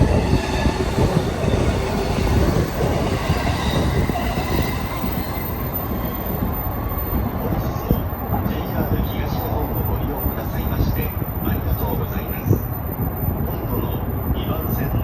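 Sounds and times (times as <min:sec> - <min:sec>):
electric train passing: 0:00.0 - 0:14.3
wind buffeting microphone: 0:00.0 - 0:15.0.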